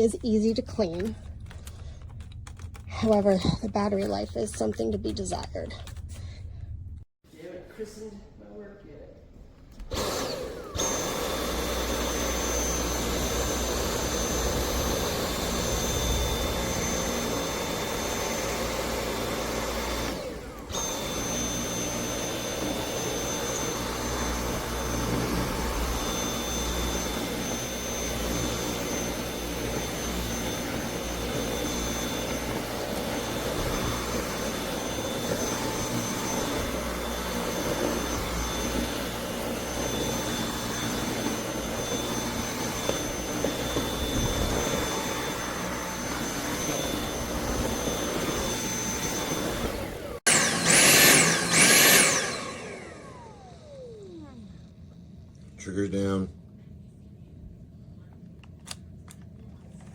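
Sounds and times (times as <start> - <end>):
cordless vacuum running: 9.7 - 55.0.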